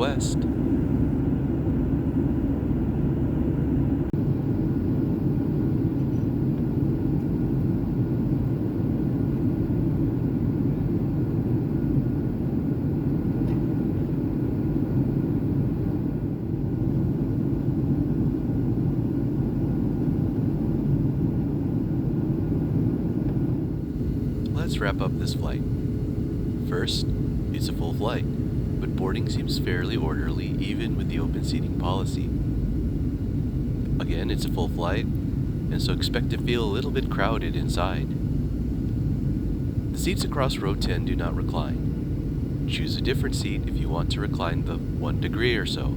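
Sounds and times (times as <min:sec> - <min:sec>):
airliner cabin engine rumble: 0:00.0 - 0:45.9
faint steady tones: 0:22.0 - 0:45.9.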